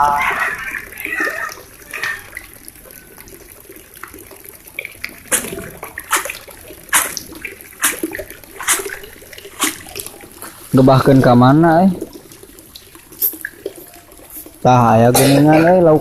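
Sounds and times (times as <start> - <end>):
low watery wash: 0.0 - 16.0
sharp water splashes: 4.7 - 10.8.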